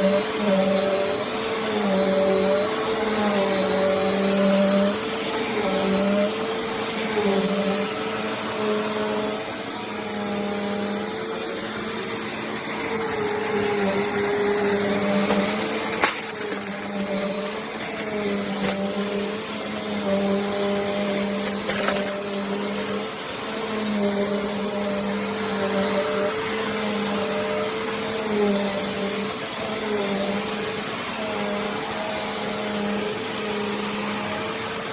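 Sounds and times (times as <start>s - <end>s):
vacuum cleaner running: 0.0s - 34.9s.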